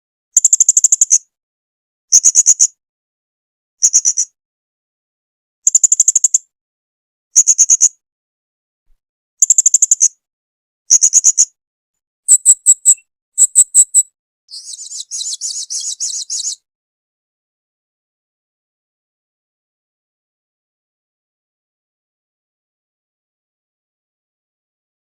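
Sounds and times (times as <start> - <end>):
parrot chirping: 12.3 - 16.6.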